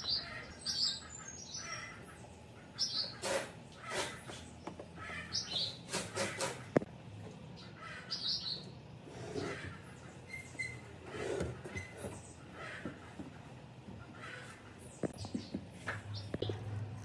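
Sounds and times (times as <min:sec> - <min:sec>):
small birds chirping: 0:00.0 - 0:06.8, 0:07.4 - 0:16.8
brief scraping noises: 0:03.2 - 0:04.5.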